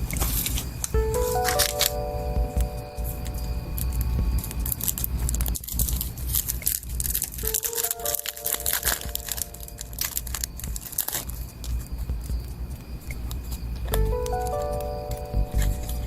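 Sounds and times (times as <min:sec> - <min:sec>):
soft background music: 0:00.1 - 0:16.0
packaging crinkling and tearing: 0:05.8 - 0:11.3.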